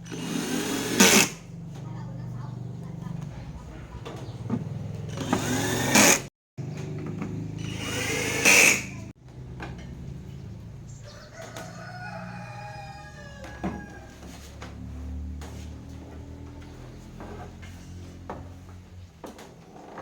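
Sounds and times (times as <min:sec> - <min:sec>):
rooster crowing: 0:11.0 - 0:14.5.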